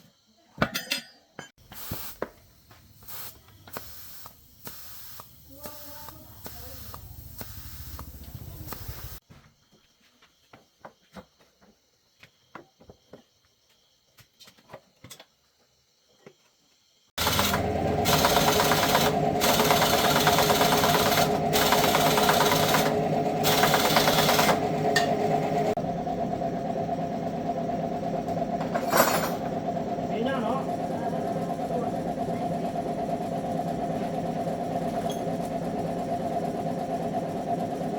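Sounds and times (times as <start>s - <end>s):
small motorcycle engine running: 2.4s - 9.2s, 17.2s - 37.9s.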